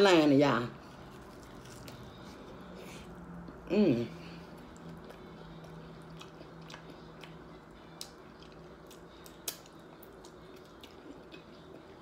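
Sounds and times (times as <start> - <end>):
chewing soft food: 4.4 - 12.0.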